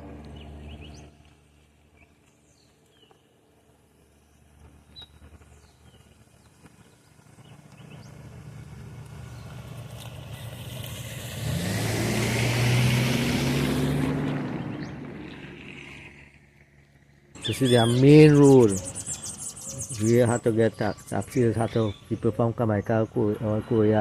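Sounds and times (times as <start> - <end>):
vehicle driving past: 4.4 - 20.5
faint bird chirps: 17.4 - 22.5.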